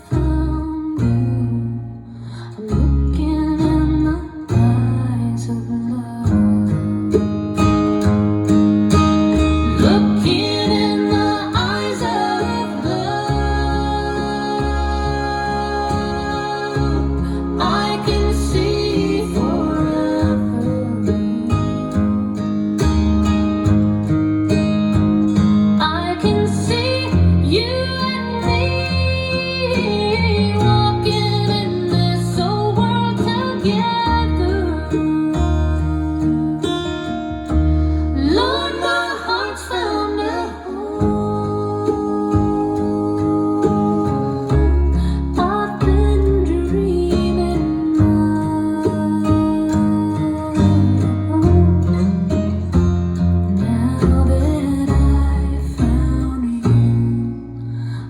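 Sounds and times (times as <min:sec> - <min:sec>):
recorded song with guitar and bass: 0:00.0 - 0:58.0
person singing: 0:09.6 - 0:22.5, 0:25.8 - 0:52.6, 0:53.5 - 0:57.2.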